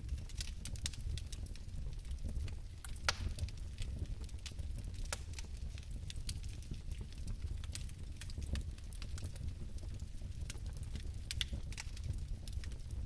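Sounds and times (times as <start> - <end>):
fire crackling: 0.0 - 13.0.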